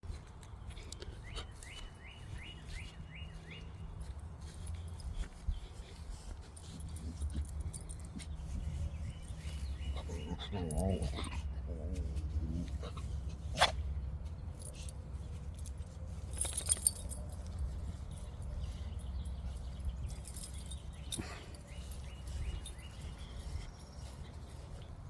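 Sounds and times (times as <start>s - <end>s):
dogs scuffing and clicking: 0.1s - 25.0s
metallic jingle: 6.5s - 8.5s, 14.6s - 23.2s.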